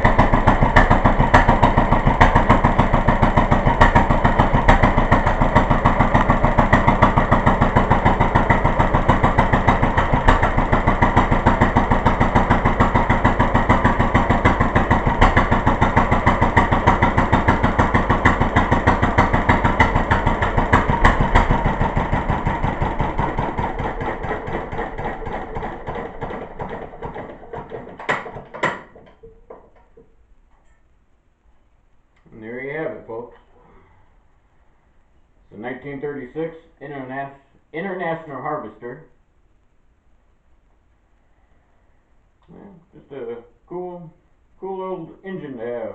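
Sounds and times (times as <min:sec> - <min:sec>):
stationary engine running: 0:00.0 - 0:29.0
engine knocks: 0:00.0 - 0:30.1.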